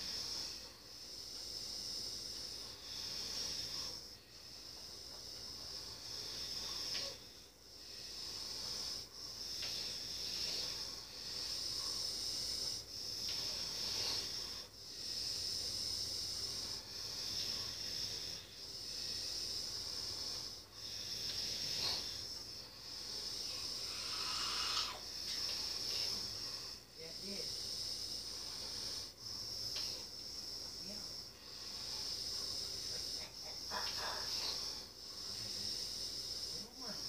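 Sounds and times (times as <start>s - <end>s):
high-pitched hiss: 0.0s - 37.0s.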